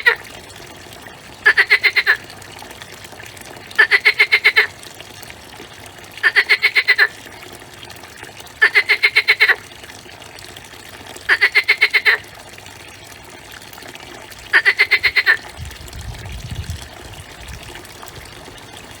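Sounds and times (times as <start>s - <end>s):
frog croaking: 0.0s - 0.2s, 1.4s - 2.2s, 3.8s - 4.7s, 6.2s - 7.2s, 8.6s - 9.6s, 11.3s - 12.2s, 14.5s - 15.5s.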